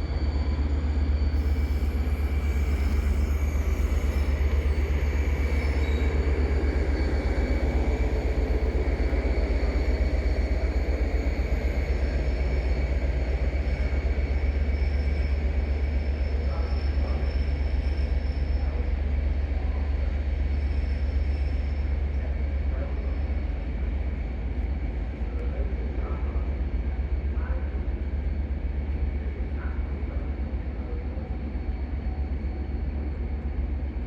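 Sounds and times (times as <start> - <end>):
faint high whine: 0.0 - 23.3
train rumbling: 0.0 - 34.0.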